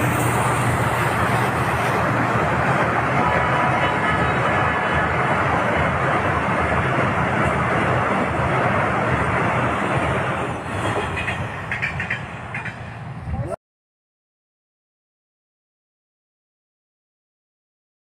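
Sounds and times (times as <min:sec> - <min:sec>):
train rumbling on track: 0:00.0 - 0:13.6.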